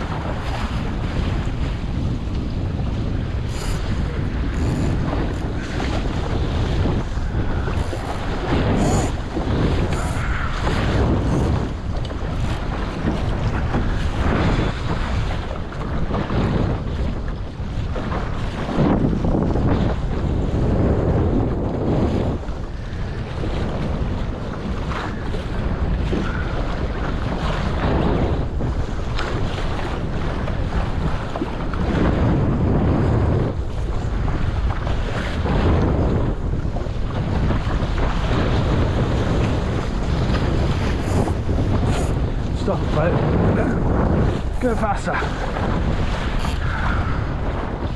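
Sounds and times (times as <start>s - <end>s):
water splashing against hull: 0.0s - 47.9s
wind buffeting microphone: 0.0s - 47.9s.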